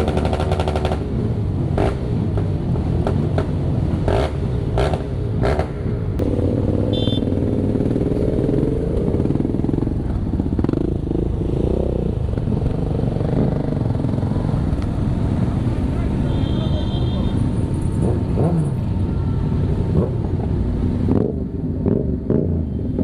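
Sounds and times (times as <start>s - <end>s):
motorcycle engines rumbling: 0.0s - 23.0s
high beep: 6.9s - 7.3s.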